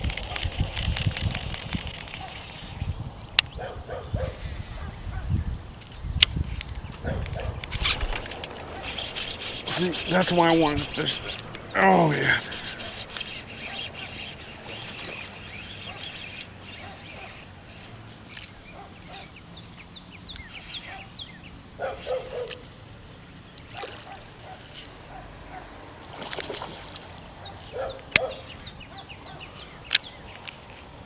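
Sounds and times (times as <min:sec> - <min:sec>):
birds chirping: 0:00.0 - 0:31.0
harsh bird calls: 0:06.8 - 0:26.2, 0:27.2 - 0:30.9
sharp clicks: 0:29.9 - 0:30.6.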